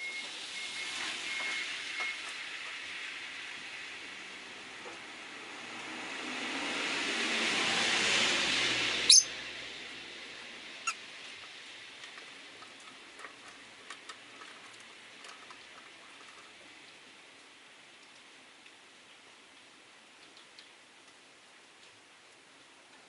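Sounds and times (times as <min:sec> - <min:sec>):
car tyres hissing on wet street: 0:00.0 - 0:14.4
rain hiss: 0:00.0 - 0:23.0
bird chirping: 0:09.1 - 0:09.3.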